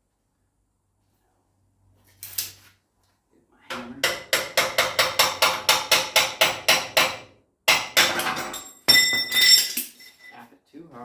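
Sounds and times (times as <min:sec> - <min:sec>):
hammer striking steel frame: 0:03.8 - 0:09.4
metal ringing: 0:08.1 - 0:10.4.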